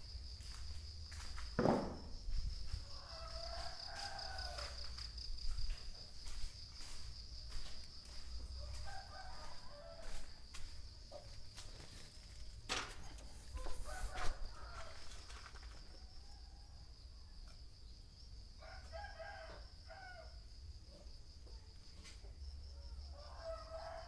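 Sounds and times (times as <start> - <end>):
sharp knocks: 1.6 - 2.1
rooster crowing: 2.7 - 7.0, 8.1 - 10.8, 13.4 - 17.0, 18.6 - 20.4, 22.8 - 24.0.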